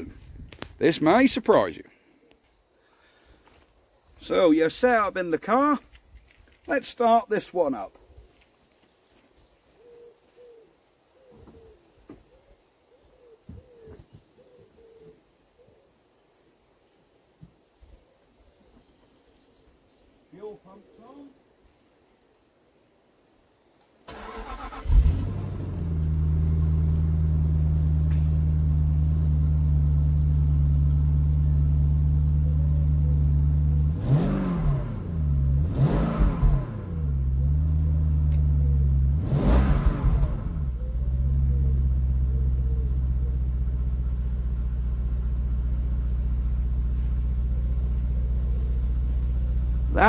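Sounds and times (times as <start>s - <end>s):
car engine fast idle: 24.1s - 25.9s
car engine cranking: 24.1s - 27.2s
engine throttle blips: 24.1s - 50.0s.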